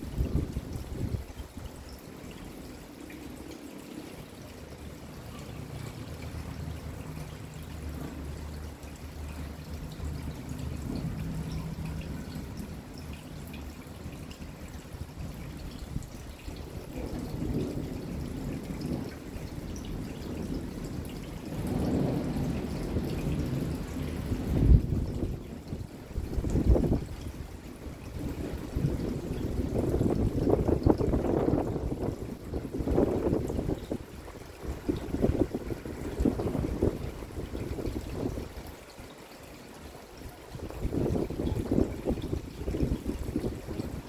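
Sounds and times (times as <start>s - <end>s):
rain falling: 0.0s - 44.0s
water dripping and trickling: 0.0s - 44.0s
distant thunder rumble: 16.5s - 27.2s, 28.1s - 38.4s.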